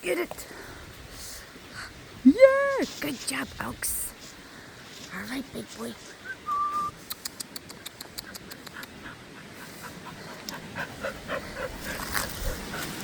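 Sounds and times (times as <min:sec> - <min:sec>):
dog panting: 0:07.7 - 0:13.0
wind on microphone: 0:11.2 - 0:13.0.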